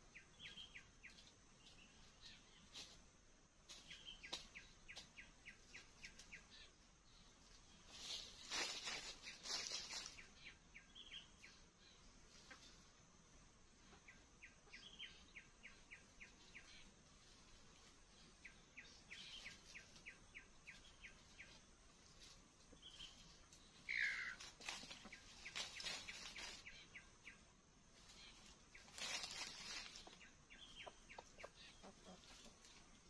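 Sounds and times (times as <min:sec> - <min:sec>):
rustling: 0:07.4 - 0:10.4, 0:20.7 - 0:26.8, 0:28.0 - 0:30.4.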